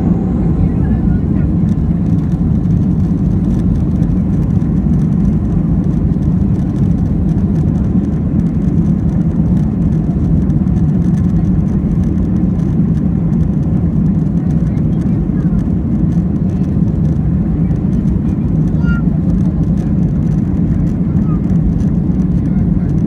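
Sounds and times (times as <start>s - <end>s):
airliner engines rumbling: 0.0s - 23.0s.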